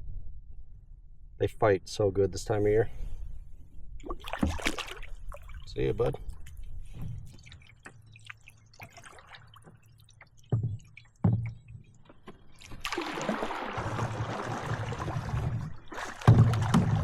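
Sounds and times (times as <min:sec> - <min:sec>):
water rushing past boat: 0:04.0 - 0:10.2, 0:12.6 - 0:17.0
hollow knocks on canoe hull: 0:10.5 - 0:12.4, 0:16.0 - 0:17.0.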